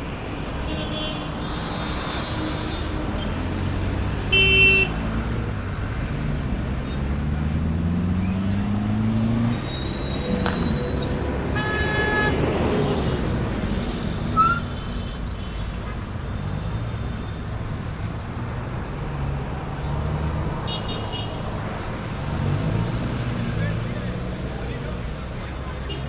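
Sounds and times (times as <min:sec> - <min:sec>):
traffic rumble: 0:00.0 - 0:26.0
car horn honk: 0:04.3 - 0:05.0, 0:09.2 - 0:12.9
vehicle engine revving: 0:04.9 - 0:14.3.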